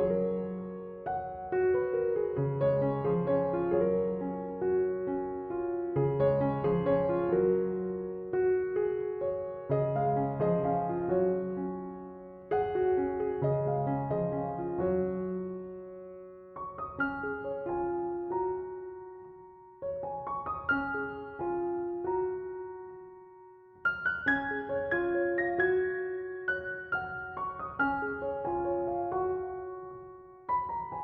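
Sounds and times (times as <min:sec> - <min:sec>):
slow gentle piano music: 0:00.0 - 0:31.0.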